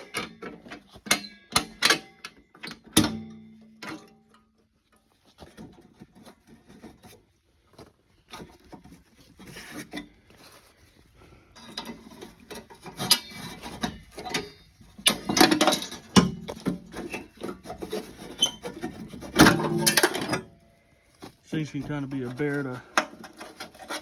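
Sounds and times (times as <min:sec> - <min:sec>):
metal scraping and clicking: 0:11.6 - 0:20.6, 0:21.8 - 0:24.0.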